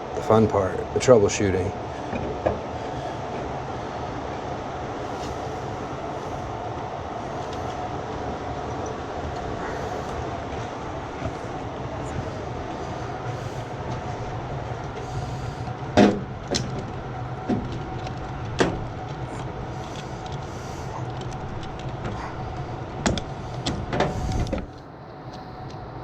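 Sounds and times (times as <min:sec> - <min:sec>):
machinery humming: 0:00.0 - 0:26.0
metallic clanks and clicks: 0:15.7 - 0:24.8.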